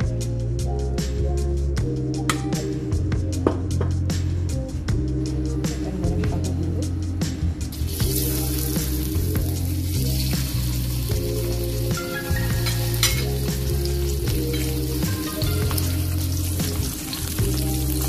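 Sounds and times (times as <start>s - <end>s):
tofu sizzling in hot oil: 7.7s - 18.0s.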